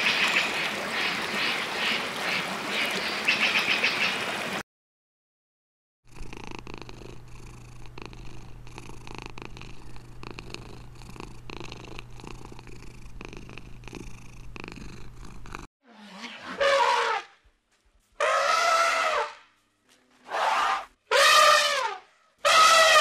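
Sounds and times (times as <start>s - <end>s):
cat purring: 6.1s - 15.7s.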